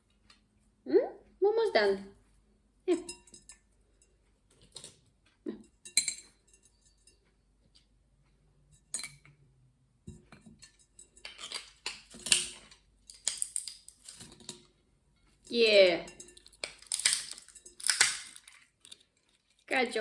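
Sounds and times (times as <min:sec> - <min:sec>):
walnuts cracking in a pot: 0:10.6 - 0:14.7, 0:16.0 - 0:20.0.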